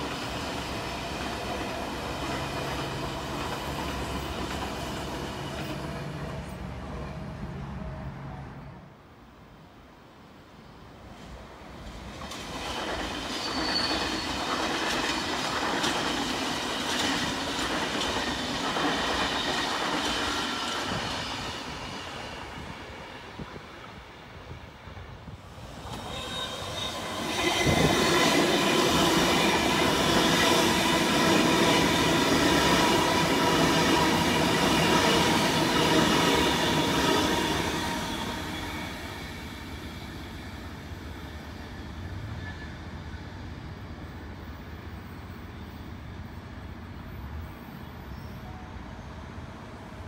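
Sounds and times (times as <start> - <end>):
electric train passing: 0.0 - 9.0, 10.7 - 50.0.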